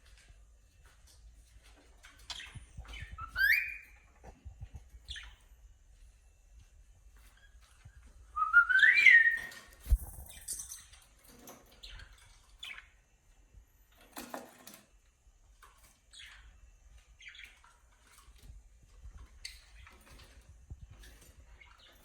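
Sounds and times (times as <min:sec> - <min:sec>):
cockatiel chirps: 0:02.9 - 0:04.0
cockatiel whistling: 0:02.9 - 0:04.0, 0:08.4 - 0:09.6.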